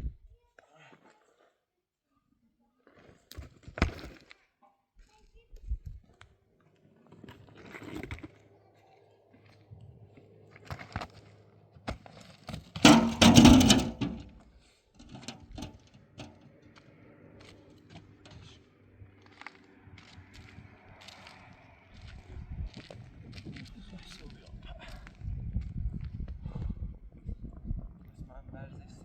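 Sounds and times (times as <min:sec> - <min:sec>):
loud clattering crash: 0:12.8 - 0:14.3
knocks and clicks of objects handled: 0:12.8 - 0:14.4, 0:15.0 - 0:16.4.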